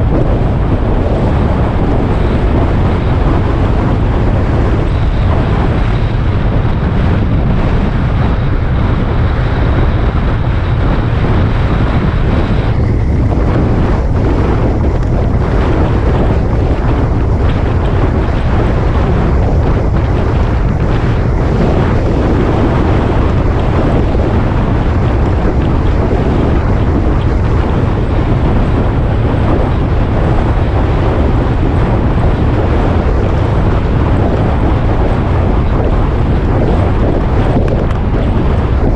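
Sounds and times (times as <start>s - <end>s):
motorcycle low rumble: 0.0s - 38.9s
wind rushing over microphone: 0.0s - 38.9s.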